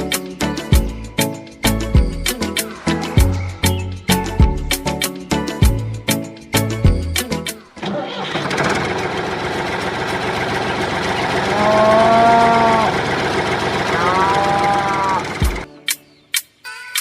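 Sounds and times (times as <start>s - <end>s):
cow mooing: 11.5s - 13.0s, 13.9s - 15.5s.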